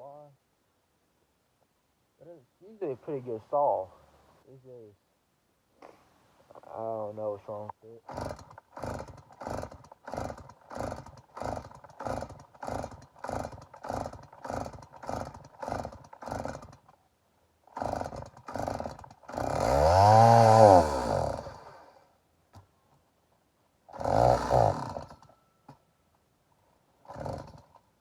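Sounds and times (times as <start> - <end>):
chainsaw engine revving: 8.0 - 17.0, 17.6 - 22.0, 23.9 - 25.4, 27.0 - 27.8
chainsaw recoil cord pulls: 8.1 - 17.0, 17.7 - 21.8, 23.9 - 25.8, 27.0 - 27.9.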